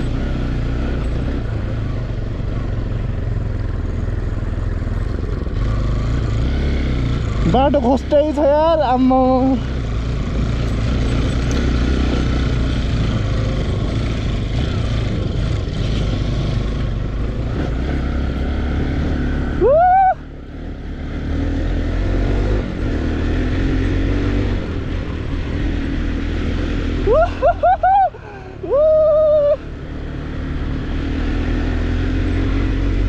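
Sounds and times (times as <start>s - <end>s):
dirt bike engine revving: 5.6s - 16.8s, 17.4s - 19.7s, 20.6s - 27.8s, 29.8s - 33.0s.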